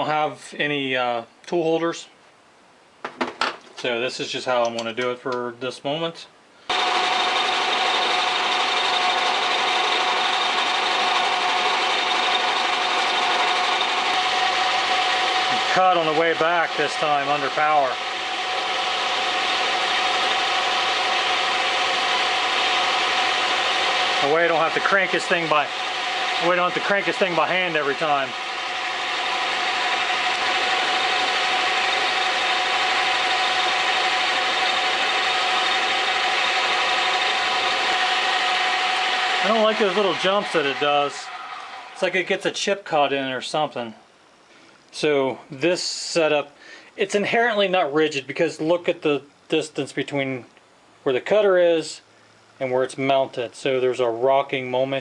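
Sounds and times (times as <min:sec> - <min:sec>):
metal lathe machining drone: 0:06.7 - 0:42.2.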